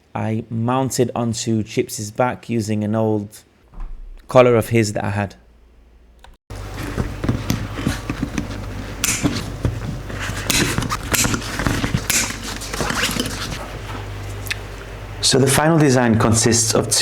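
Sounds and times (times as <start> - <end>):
steady low hum: 3.7 - 17.0.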